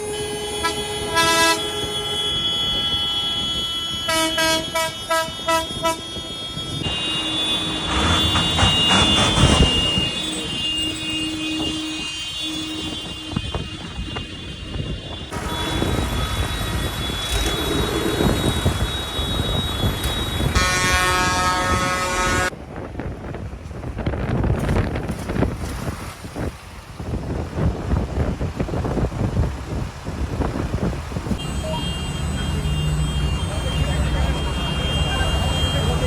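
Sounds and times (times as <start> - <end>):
vehicle horns honking: 0.0 - 22.5, 31.3 - 36.0.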